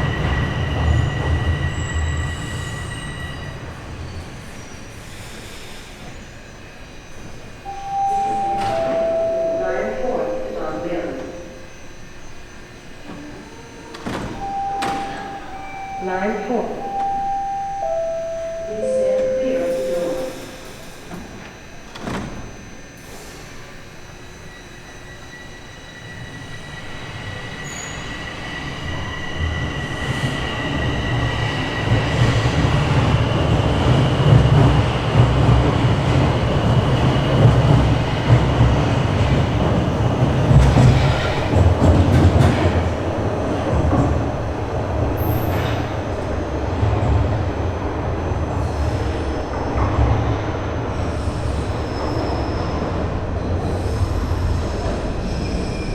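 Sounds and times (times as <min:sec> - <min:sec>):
high whine: 0:07.6 - 0:22.7
wheels rumbling on rails: 0:29.3 - 0:55.9.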